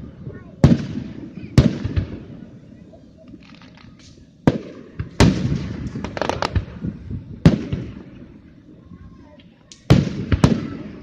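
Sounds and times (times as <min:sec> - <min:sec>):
fireworks bangs: 0:00.0 - 0:11.0
crackling firework pops: 0:00.6 - 0:02.3, 0:03.2 - 0:08.2, 0:09.4 - 0:11.0.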